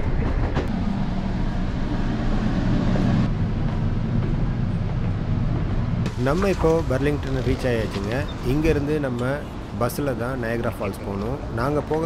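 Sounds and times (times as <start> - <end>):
train rumble inside coach: 0.0 - 8.7.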